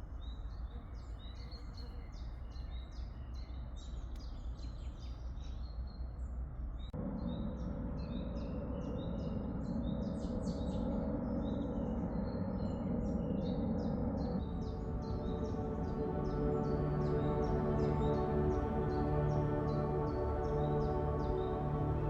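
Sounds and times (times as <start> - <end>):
low background noise: 0.0 - 22.0
small songbirds chirping: 0.0 - 22.0
low steady hum: 7.0 - 22.0.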